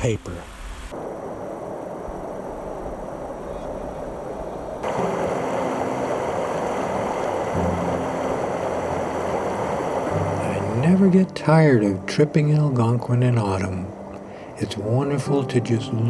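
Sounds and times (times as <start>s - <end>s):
water rushing over rapids: 0.0s - 11.3s
wind: 0.0s - 16.0s.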